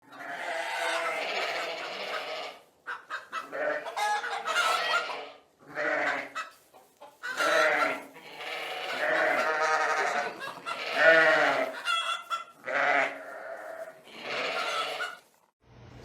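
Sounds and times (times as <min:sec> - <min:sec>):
animal calling: 0:07.2 - 0:15.3.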